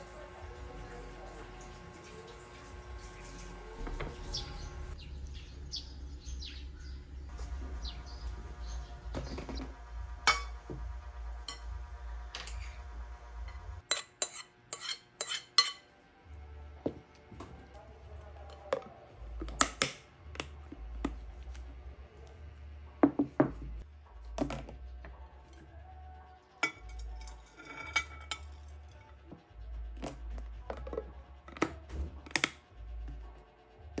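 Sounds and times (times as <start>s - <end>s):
ringing dish: 10.3s - 10.6s
dishes clinking on counter: 10.3s - 10.7s, 13.9s - 15.9s, 26.6s - 29.1s.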